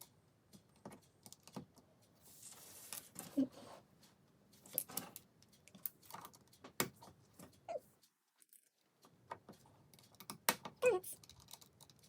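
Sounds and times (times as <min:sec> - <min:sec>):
plastic bricks clicking and rattling: 0:11.2 - 0:12.0.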